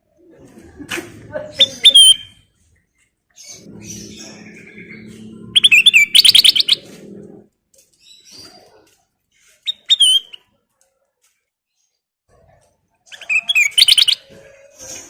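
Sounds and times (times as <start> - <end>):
bulbul singing: 3.4 - 7.0, 13.1 - 14.3.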